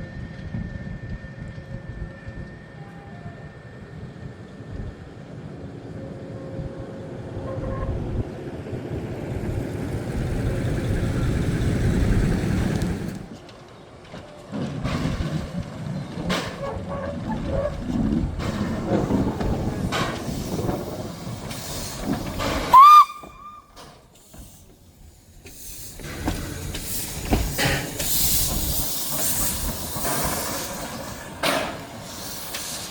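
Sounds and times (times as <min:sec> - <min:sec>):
steam train rumbling past: 0:02.0 - 0:13.3, 0:14.5 - 0:32.9
steam noise: 0:18.4 - 0:32.9
high train whistle blast: 0:22.7 - 0:23.8.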